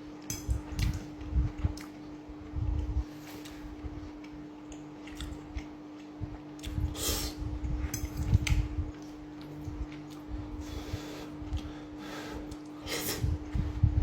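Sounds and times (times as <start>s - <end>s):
faint steady hum: 0.0s - 14.0s
person chewing: 0.6s - 2.0s, 3.2s - 10.4s.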